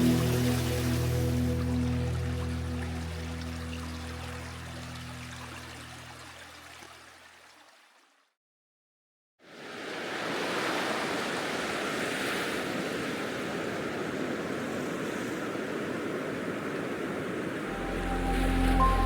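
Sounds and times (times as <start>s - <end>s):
soft background music: 0.0s - 6.4s, 17.7s - 19.0s
sea waves washing on shore: 9.5s - 19.0s.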